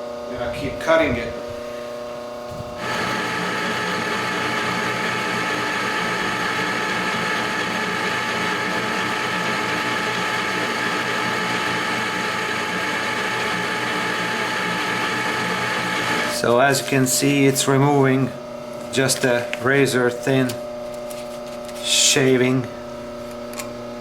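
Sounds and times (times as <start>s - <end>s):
metal lathe gear whine: 2.2s - 18.4s.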